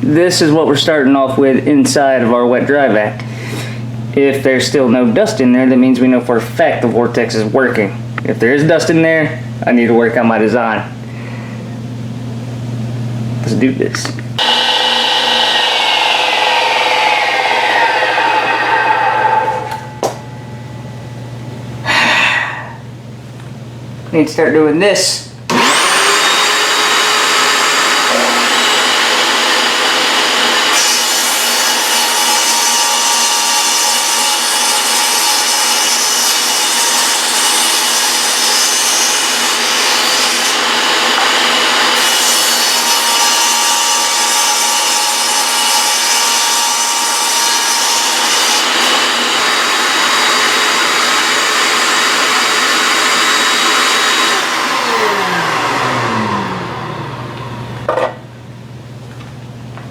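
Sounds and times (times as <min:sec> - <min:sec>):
shop vacuum running: 0:00.0 - 0:59.9
table saw cutting wood: 0:14.4 - 0:21.1, 0:25.5 - 0:58.2.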